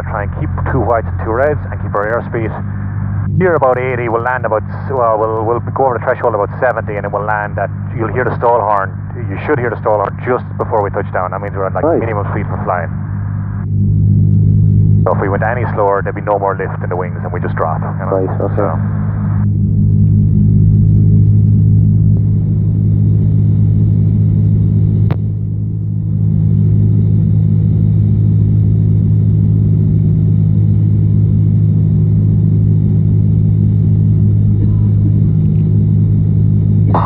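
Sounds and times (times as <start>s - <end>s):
propeller engine droning: 0.0s - 37.0s.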